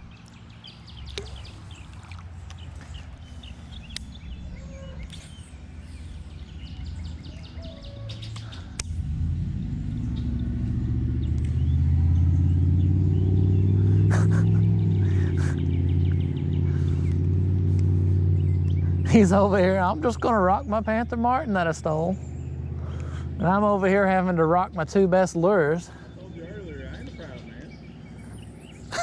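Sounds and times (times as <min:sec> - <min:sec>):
small birds chirping: 0:00.0 - 0:29.0
vehicle engine hum: 0:00.0 - 0:29.0
sharp clicks: 0:08.3 - 0:09.0.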